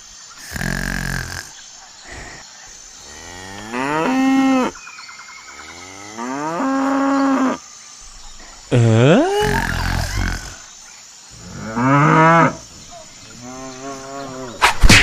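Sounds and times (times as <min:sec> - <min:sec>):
cow mooing: 0:11.4 - 0:12.6.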